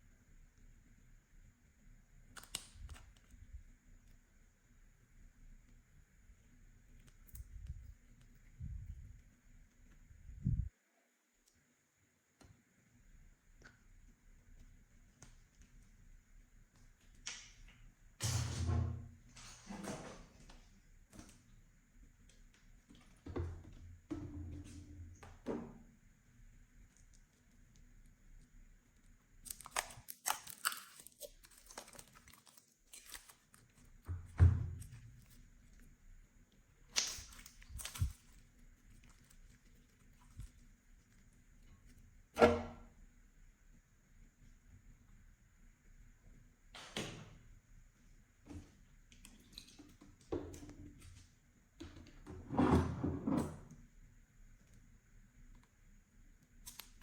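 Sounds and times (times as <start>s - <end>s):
slime crackling and popping: 29.4s - 33.9s, 36.9s - 40.4s.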